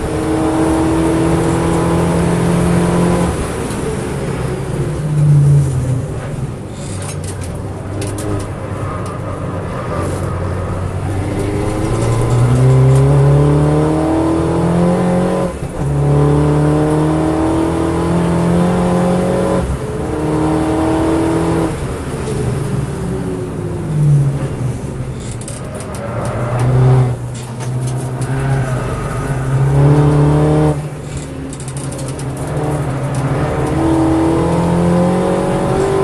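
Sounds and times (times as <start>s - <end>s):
race car engine accelerating: 0.0s - 4.1s, 10.1s - 22.4s, 24.2s - 36.0s
gear upshifts: 5.2s - 16.9s.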